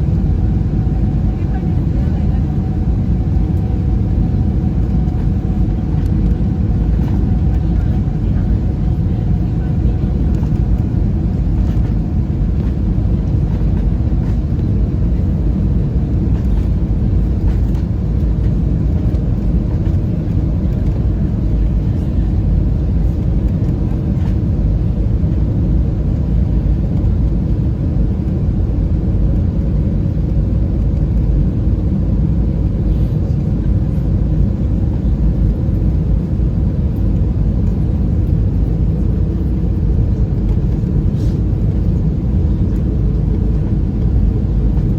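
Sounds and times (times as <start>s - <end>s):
airplane cabin engine rumble: 0.0s - 44.9s.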